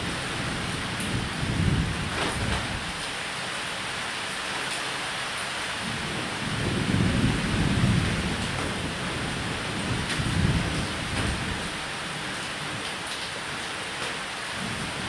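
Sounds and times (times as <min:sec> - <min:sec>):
rolling thunder: 0:00.0 - 0:03.0, 0:05.9 - 0:12.0
steady rain: 0:00.0 - 0:15.0.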